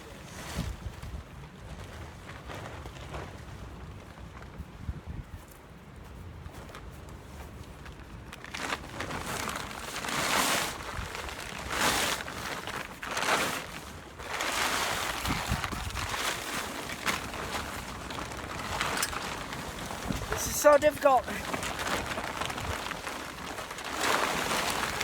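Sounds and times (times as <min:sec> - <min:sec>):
gusty wind on microphone: 0:00.2 - 0:05.4, 0:14.8 - 0:23.5.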